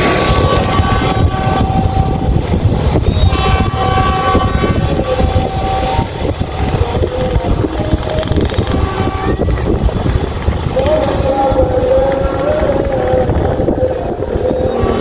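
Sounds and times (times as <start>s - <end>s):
train horn blasts: 0.0s - 2.5s, 3.2s - 6.6s, 8.6s - 9.7s
passenger train rumbling past: 0.0s - 15.0s.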